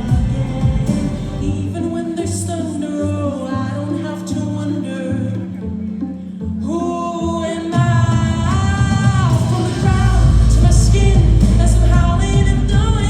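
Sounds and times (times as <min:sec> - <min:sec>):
heavy bass beat: 0:00.0 - 0:02.4, 0:07.7 - 0:13.0
pop backing track: 0:00.0 - 0:13.0.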